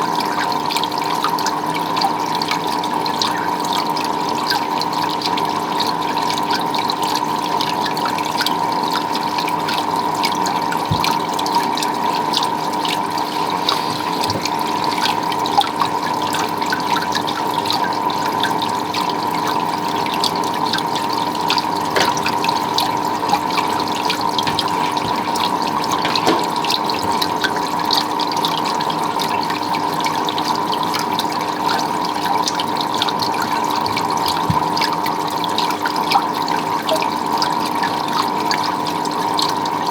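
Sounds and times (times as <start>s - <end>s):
drips and splashes: 0.0s - 39.9s
water running and trickling: 0.0s - 39.9s.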